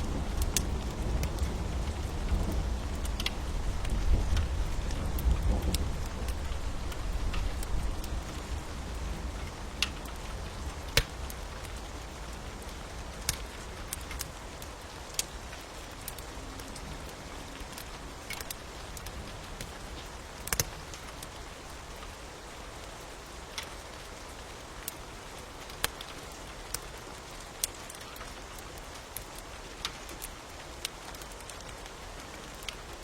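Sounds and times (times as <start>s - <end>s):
crackling wood fire pops: 0.0s - 16.8s, 17.5s - 22.1s
steady rain hiss: 0.0s - 33.0s.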